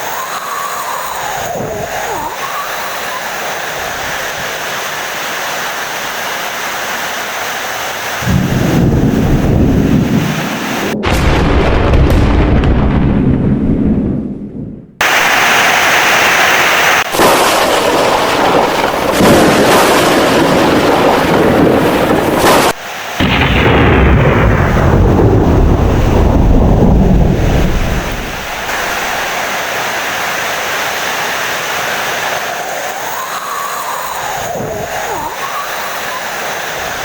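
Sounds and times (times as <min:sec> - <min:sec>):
heavy rain: 0:00.0 - 0:12.6, 0:15.0 - 0:37.0
loud thunder: 0:08.2 - 0:15.4, 0:17.1 - 0:29.3.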